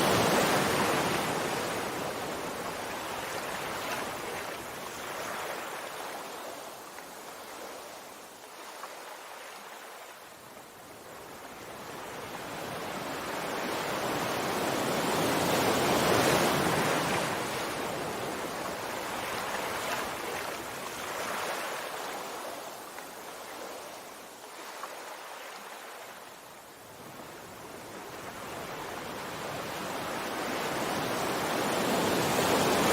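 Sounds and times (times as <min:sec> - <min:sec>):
sea waves surf rushing: 0:00.0 - 0:06.4, 0:28.2 - 0:32.9.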